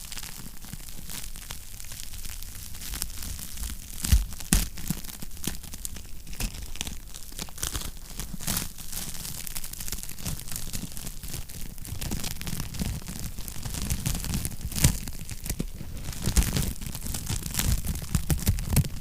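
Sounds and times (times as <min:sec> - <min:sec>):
wood fire crackling and popping: 0:00.0 - 0:19.0
low rumble of fire: 0:09.4 - 0:19.0.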